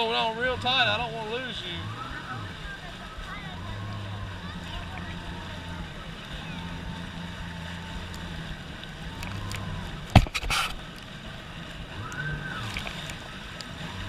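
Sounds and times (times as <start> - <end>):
jet ski engine running: 0.0 - 14.0
water sloshing against hull: 0.0 - 14.0.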